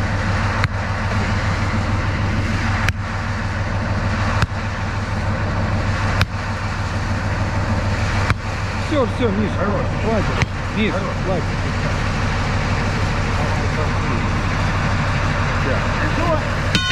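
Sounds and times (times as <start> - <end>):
diesel engine idling: 0.0 - 16.9
sharp metallic strikes: 15.7 - 16.9.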